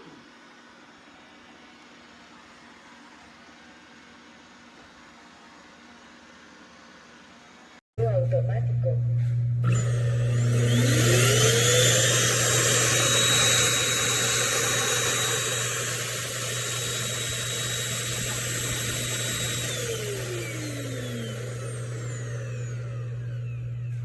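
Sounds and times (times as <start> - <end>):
vacuum fan motor whining: 8.0 - 24.0.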